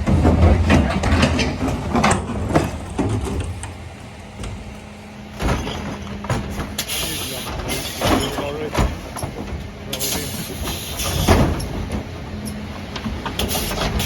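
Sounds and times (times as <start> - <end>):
clattering knocks: 0.0 - 3.8, 5.3 - 14.0
refuse truck hum: 0.0 - 14.0.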